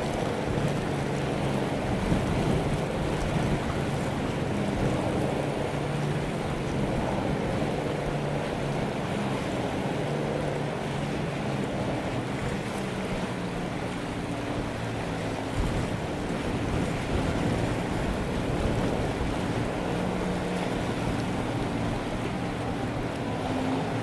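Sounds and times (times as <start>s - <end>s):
ship engine low drone: 0.0s - 24.0s
wind rushing over microphone: 15.4s - 24.0s.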